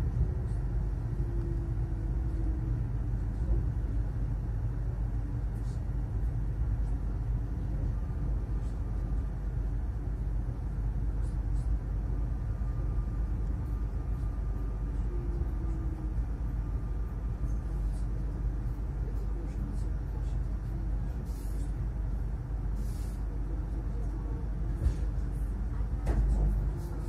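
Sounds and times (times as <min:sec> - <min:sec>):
train interior rumble: 0:00.0 - 0:27.0.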